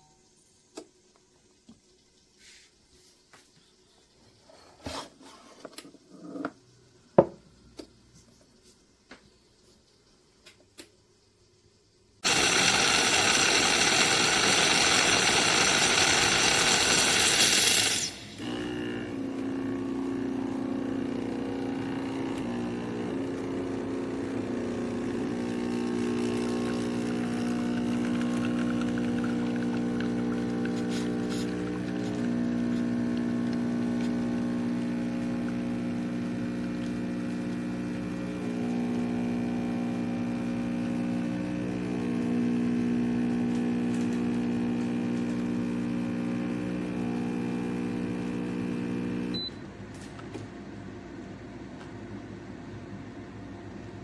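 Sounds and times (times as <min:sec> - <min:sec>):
espresso machine steam hiss: 0:12.2 - 0:49.4
pump hum: 0:12.2 - 0:49.6.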